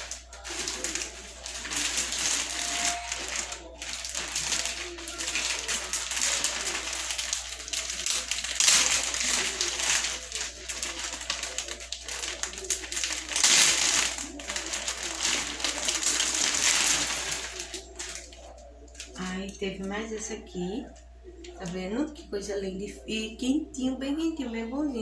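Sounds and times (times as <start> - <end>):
plastic packaging crinkling: 0.0 - 19.6.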